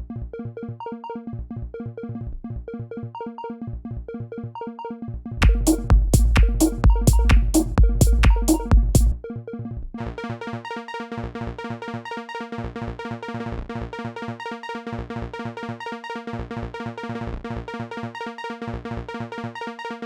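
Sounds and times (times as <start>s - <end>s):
plucky synthesizer notes: 0.0s - 20.0s
kick drums: 5.4s - 9.2s.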